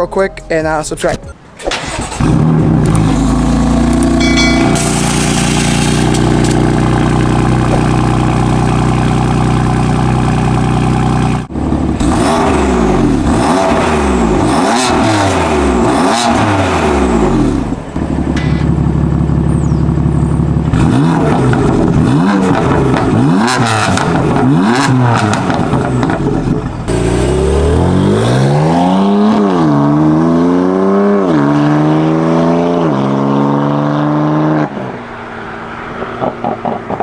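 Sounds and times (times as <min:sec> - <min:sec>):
car engine revving: 0:01.7 - 0:37.0.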